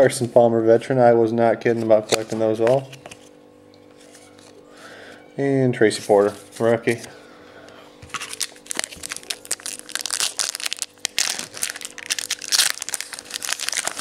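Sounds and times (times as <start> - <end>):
foil wrapper crinkling: 8.1 - 14.0.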